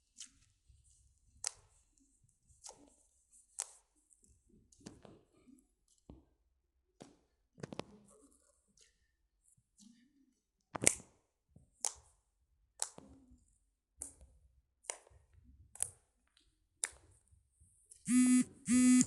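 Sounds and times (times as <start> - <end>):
loud buzzy beep: 18.1 - 19.0.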